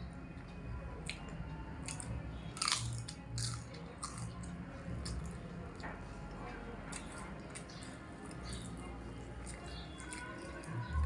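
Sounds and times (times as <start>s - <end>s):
person chewing crunchy food: 1.8s - 5.4s.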